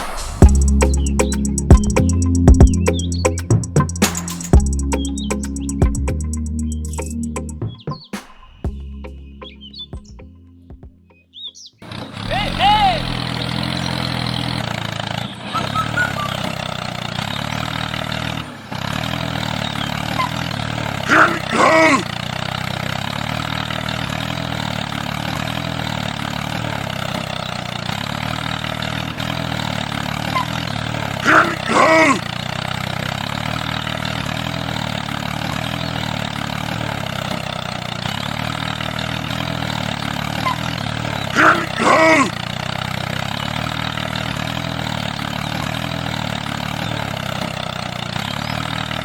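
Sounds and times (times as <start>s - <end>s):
small motor running: 11.8s - 31.4s, 32.0s - 49.0s.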